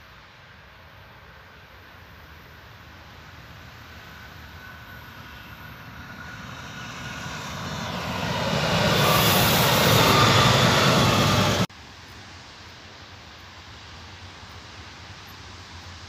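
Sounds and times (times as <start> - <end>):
faint wind: 0.0 - 16.0
train passing: 1.2 - 11.7.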